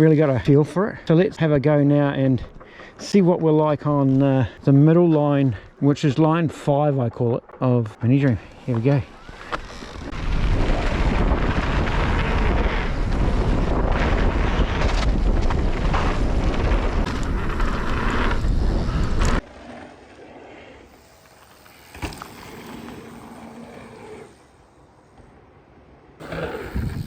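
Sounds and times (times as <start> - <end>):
bike tyres rumbling: 6.6 - 25.6, 26.2 - 27.0
wind rushing over microphone: 8.9 - 19.5, 26.2 - 27.0.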